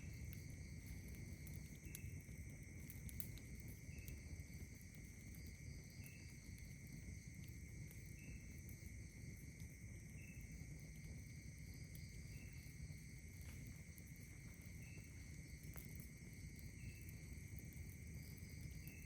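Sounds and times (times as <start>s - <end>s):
crickets trilling: 0.0s - 19.0s
faint ticks: 0.0s - 19.0s
short insect chirp: 0.0s - 19.0s.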